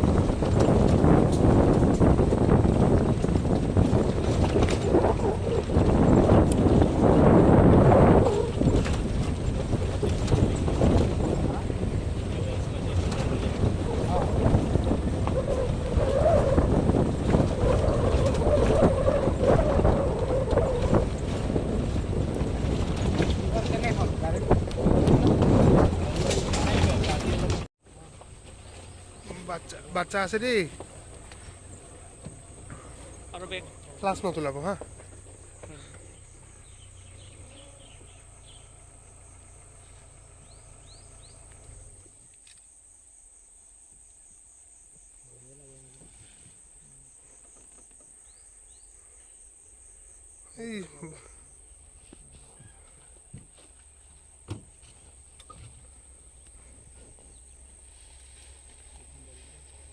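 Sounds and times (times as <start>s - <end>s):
wind buffeting microphone: 0.0s - 27.7s, 29.0s - 42.0s
jeep engine running: 0.0s - 42.2s
crickets or cicadas droning: 0.0s - 59.9s.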